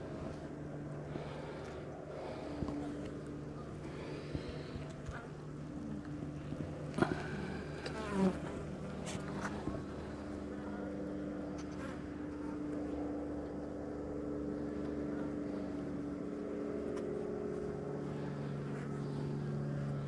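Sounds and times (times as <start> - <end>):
honeybees buzzing: 0.0 - 12.6.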